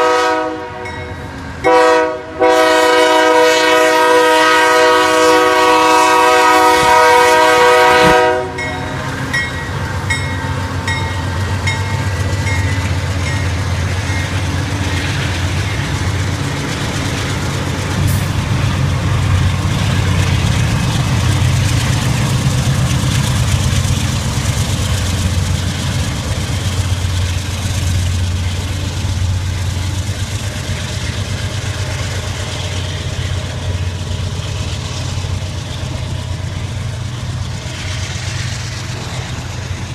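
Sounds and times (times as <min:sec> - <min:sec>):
locomotive horn: 0:00.0 - 0:09.0
train wheels on rails: 0:00.0 - 0:39.9
diesel engines rumbling: 0:03.8 - 0:39.9.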